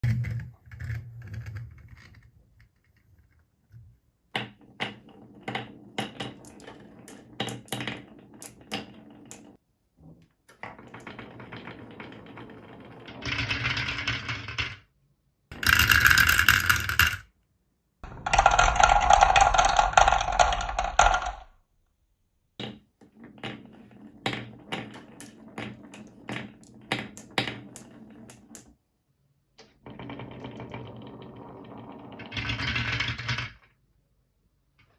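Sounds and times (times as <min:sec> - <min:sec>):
marbles rolling rumble: 0:04.5 - 0:09.6, 0:10.6 - 0:14.8, 0:15.5 - 0:17.3, 0:18.0 - 0:21.5, 0:23.1 - 0:28.7, 0:29.8 - 0:33.8
marbles clicking on track: 0:15.5 - 0:17.3, 0:18.0 - 0:21.5.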